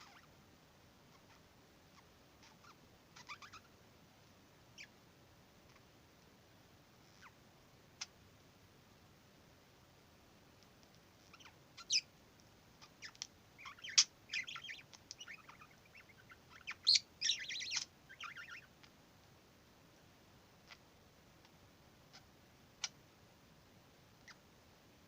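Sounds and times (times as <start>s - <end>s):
budgerigar chattering: 2.4s - 3.7s, 11.3s - 12.1s, 12.8s - 18.7s.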